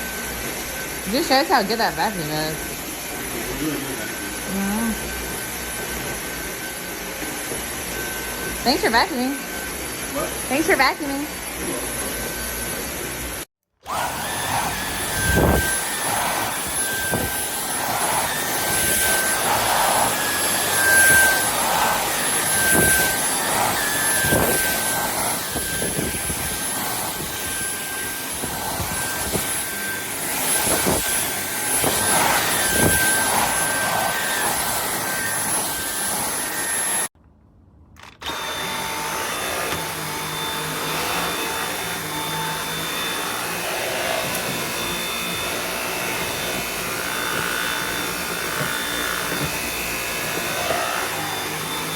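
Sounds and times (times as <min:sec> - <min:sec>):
vacuum cleaner motor whine: 0:00.0 - 0:37.1, 0:38.0 - 0:51.9
vacuum knocking on floor: 0:44.1 - 0:51.2.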